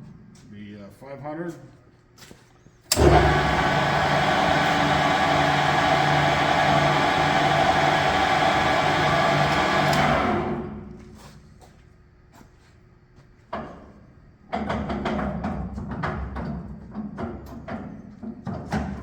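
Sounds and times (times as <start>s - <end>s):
lathe motor click: 2.9s - 10.7s
lathe running with gear whine: 3.0s - 10.8s.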